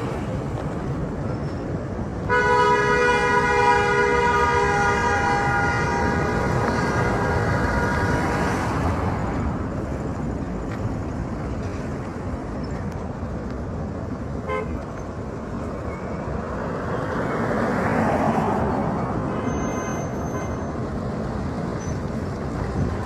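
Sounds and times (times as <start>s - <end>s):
road traffic noise: 0.0s - 23.0s
car horn toot: 2.3s - 8.2s, 14.4s - 14.8s.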